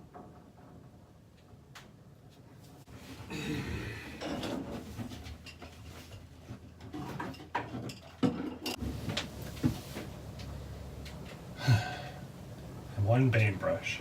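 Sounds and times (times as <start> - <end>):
items clattering in a locker: 4.2 - 10.4
low steady hum: 7.8 - 14.0.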